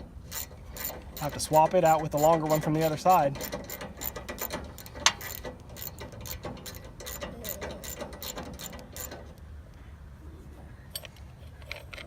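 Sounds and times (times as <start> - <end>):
socket wrench ratchet clicking: 0.3 - 1.4, 3.4 - 9.2.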